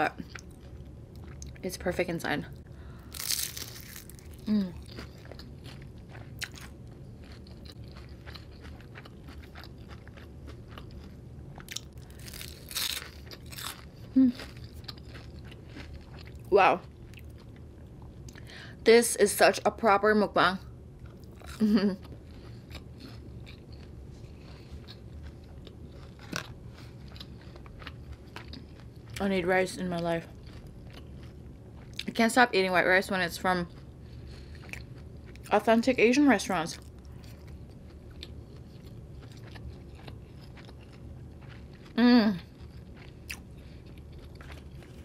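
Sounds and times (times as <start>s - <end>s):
chewing with crunches: 0.0s - 1.6s, 3.0s - 18.5s, 21.0s - 32.4s, 33.0s - 36.0s, 36.7s - 45.0s
person humming: 4.5s - 4.8s, 14.2s - 14.4s, 42.0s - 42.4s.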